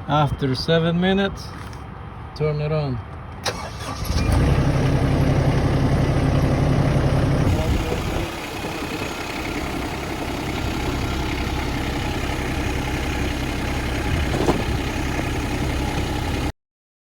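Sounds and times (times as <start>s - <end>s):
diesel engine idling: 3.5s - 16.5s.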